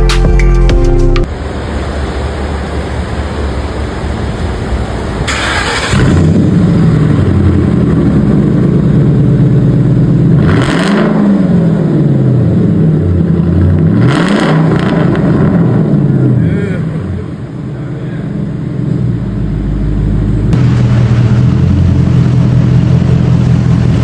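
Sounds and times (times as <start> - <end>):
car engine starting and idling: 0.0 - 24.0
engine revving: 5.3 - 24.0.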